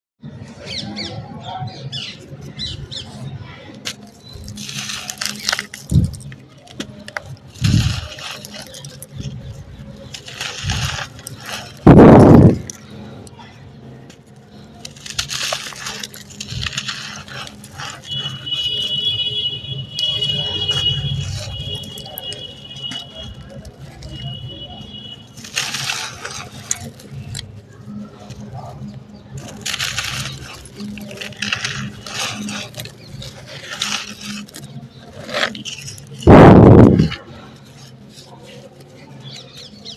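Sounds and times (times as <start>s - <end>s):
sand-cement chunks crunching: 3.8s - 13.0s, 14.5s - 39.9s.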